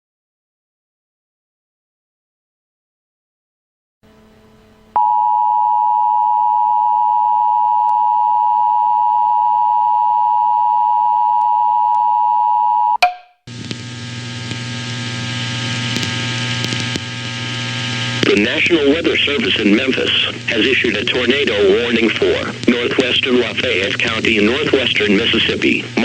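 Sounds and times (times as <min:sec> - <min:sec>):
two-tone electronic alarm: 0:05.0 - 0:13.2
static hiss: 0:13.5 - 0:26.0.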